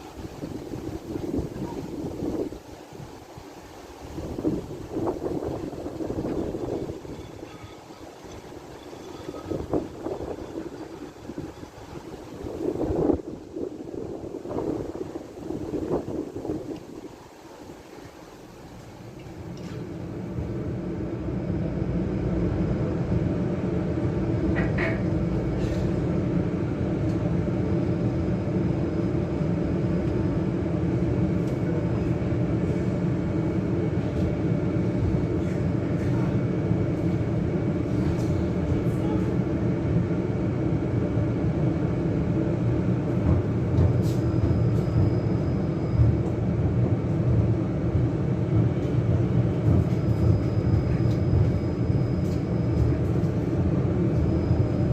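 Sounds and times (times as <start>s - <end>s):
tram wheels rumbling on rails: 0.0s - 54.9s
faint high whine: 40.6s - 54.9s.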